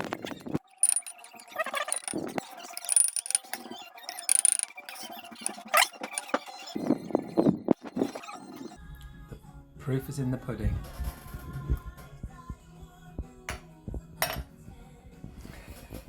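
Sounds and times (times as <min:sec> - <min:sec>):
utensils clattering against cookware: 0:00.8 - 0:06.4.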